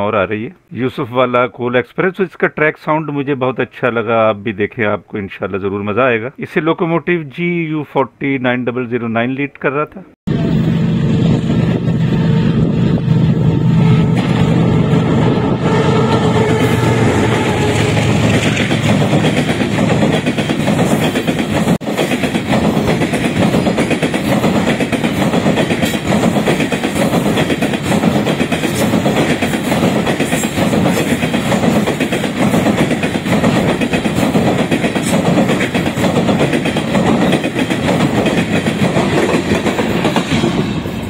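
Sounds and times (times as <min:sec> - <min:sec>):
train wheels clattering on rails: 0:14.1 - 0:14.7, 0:16.0 - 0:41.0.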